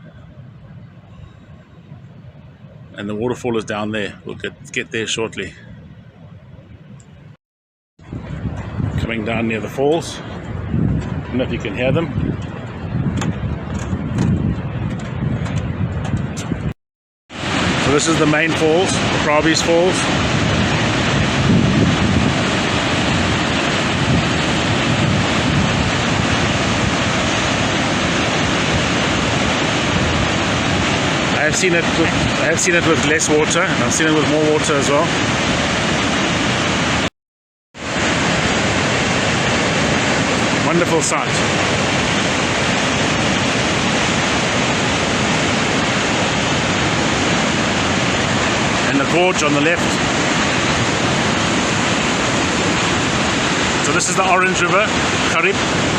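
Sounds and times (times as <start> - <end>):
waterfall rushing: 17.3 - 37.1, 37.8 - 55.9.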